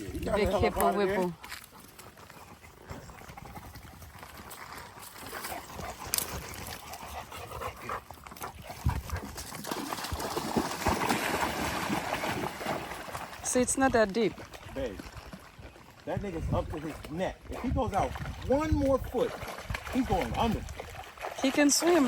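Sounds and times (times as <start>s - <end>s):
dog splashing in water: 8.3s - 22.0s.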